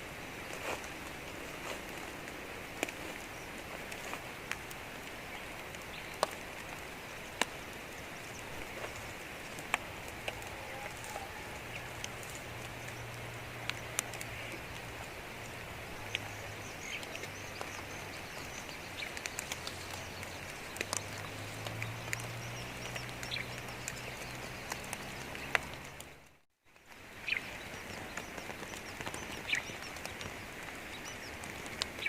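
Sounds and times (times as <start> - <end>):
steady hiss: 0.0 - 26.1.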